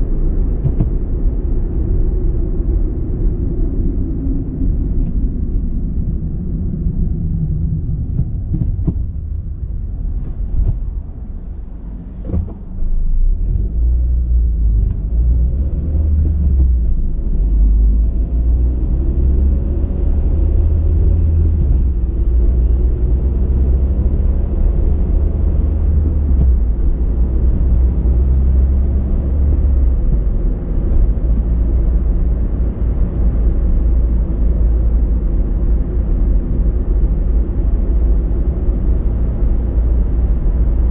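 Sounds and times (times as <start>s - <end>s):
car engine and tyres rumbling: 0.0s - 40.9s.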